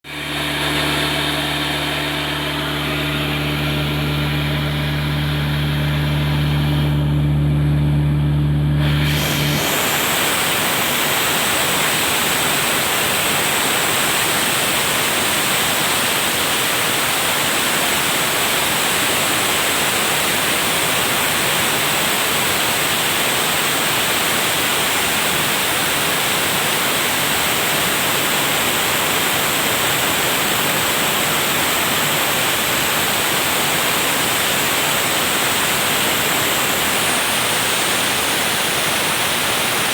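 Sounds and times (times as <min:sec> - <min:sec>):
machine hum: 0:00.0 - 0:22.7.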